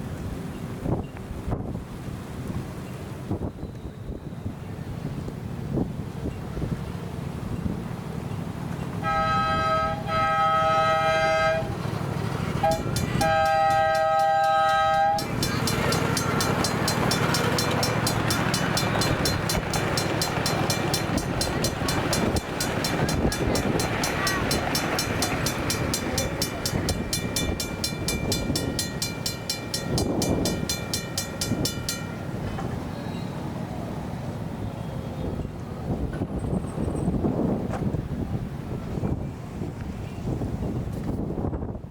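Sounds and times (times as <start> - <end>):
train rumbling over crossing: 0.0 - 41.9
model locomotive horn: 9.0 - 11.8, 12.6 - 19.6
mechanical crossing bell ringing: 12.7 - 32.5.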